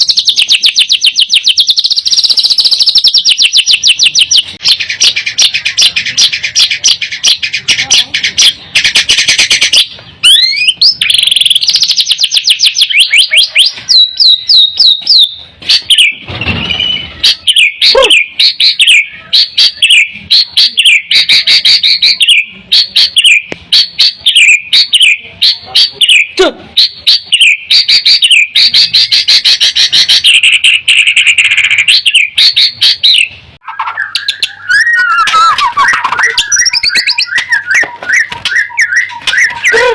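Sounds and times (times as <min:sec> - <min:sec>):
songbird singing chips and trills: 0:00.0 - 0:16.2, 0:26.8 - 0:39.8.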